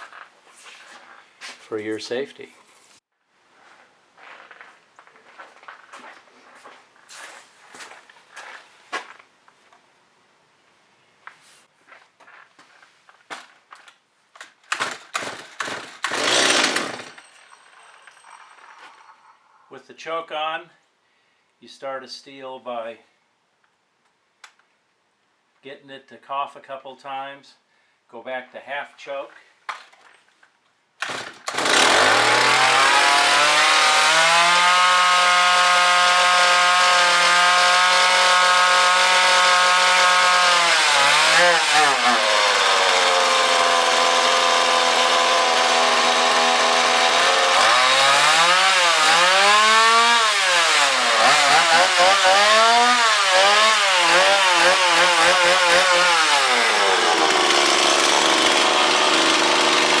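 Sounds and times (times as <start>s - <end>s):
chainsaw idling and revving: 14.8s - 17.3s, 31.0s - 60.0s.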